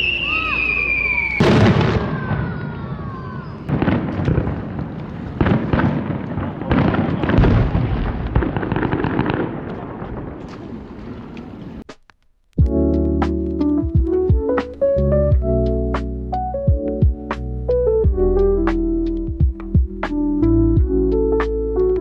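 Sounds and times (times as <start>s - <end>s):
firework whistle falling in pitch: 0.0s - 3.9s
fireworks booming: 0.0s - 12.0s.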